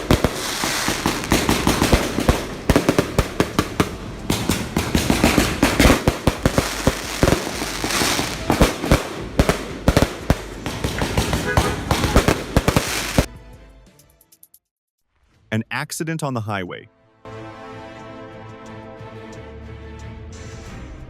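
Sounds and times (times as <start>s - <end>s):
hissing: 0.0s - 13.3s
sharp bangs and crackles: 0.0s - 13.3s.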